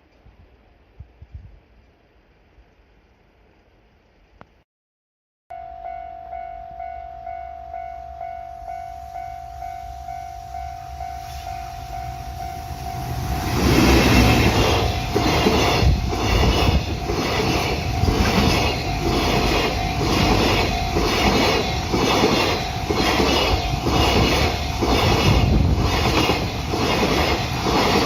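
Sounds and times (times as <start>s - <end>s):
warning bell ringing: 5.5s - 26.7s
freight train passing: 5.7s - 28.0s
train wheels clacking: 10.6s - 28.0s.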